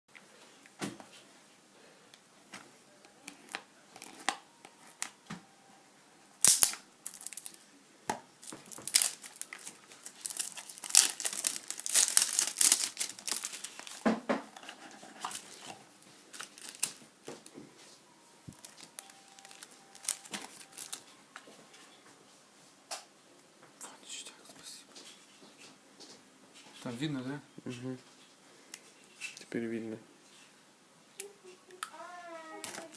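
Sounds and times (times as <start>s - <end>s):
packaging crinkling and tearing: 6.4s - 7.6s, 8.4s - 17.5s, 18.5s - 21.1s, 32.6s - 32.9s.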